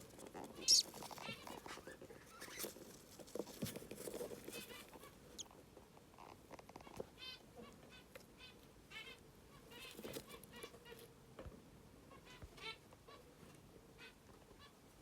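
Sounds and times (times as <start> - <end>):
budgerigars chirping faintly: 0.4 - 2.8, 12.0 - 15.0.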